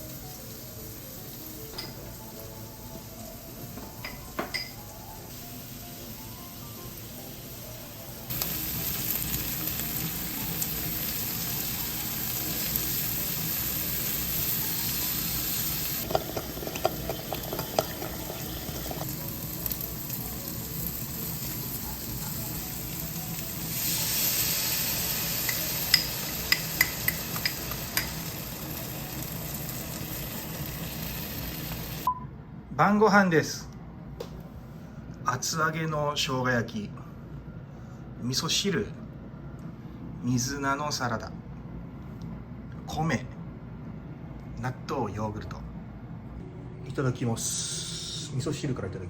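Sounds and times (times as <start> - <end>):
food sizzling in a frying pan: 0.0 - 32.1.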